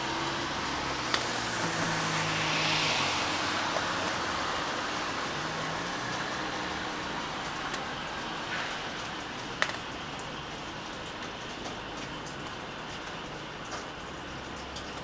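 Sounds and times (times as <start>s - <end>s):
steady rain falling: 0.0s - 15.0s
drops ticking on a surface: 7.4s - 15.0s.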